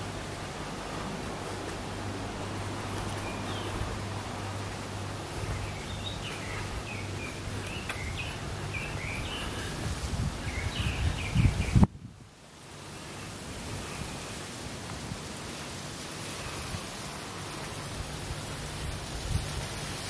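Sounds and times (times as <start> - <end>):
wind buffeting microphone: 0.4 - 12.4, 16.3 - 20.0
small birds chirping: 2.4 - 11.9.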